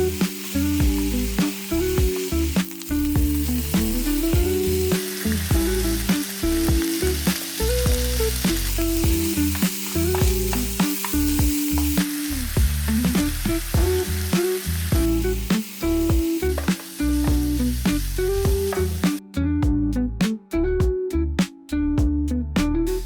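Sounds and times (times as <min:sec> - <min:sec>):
chicken sizzling in a pan: 0:00.0 - 0:19.2
background music with bass: 0:00.0 - 0:23.0
stirring clicks and scrapes: 0:08.4 - 0:12.1.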